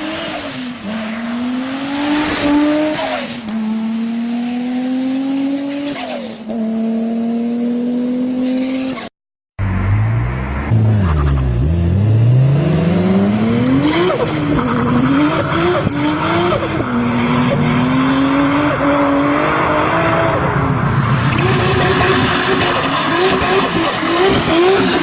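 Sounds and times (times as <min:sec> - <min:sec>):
car engine accelerating hard: 0:09.6 - 0:25.0.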